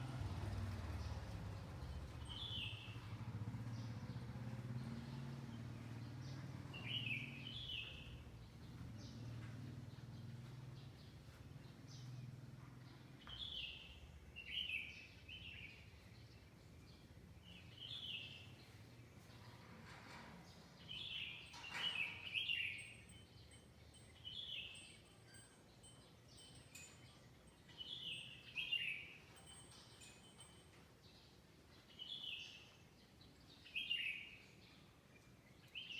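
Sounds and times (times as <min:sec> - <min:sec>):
songbird singing bright phrases: 0:00.8 - 0:12.2, 0:13.2 - 0:19.5, 0:20.6 - 0:30.0, 0:31.0 - 0:35.9
small bird chirping: 0:20.8 - 0:35.9.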